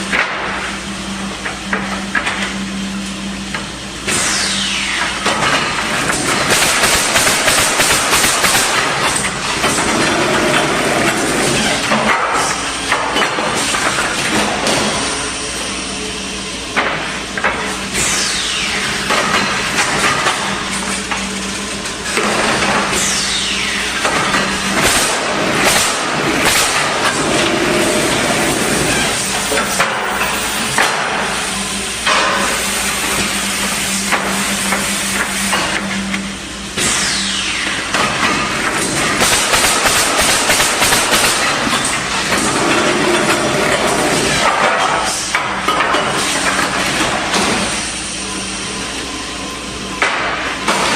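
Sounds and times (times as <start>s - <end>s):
machine hum: 0.0s - 50.9s
nail guns firing: 6.4s - 9.2s, 24.8s - 27.1s, 39.2s - 41.9s.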